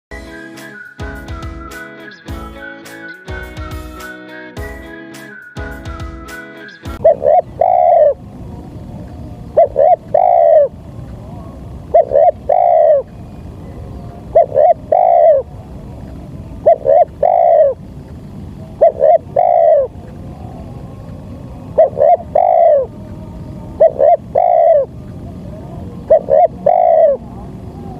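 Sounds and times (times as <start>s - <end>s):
dove cooing: 6.6s - 10.8s, 11.4s - 13.1s, 13.8s - 15.9s, 16.5s - 17.9s, 18.6s - 27.9s.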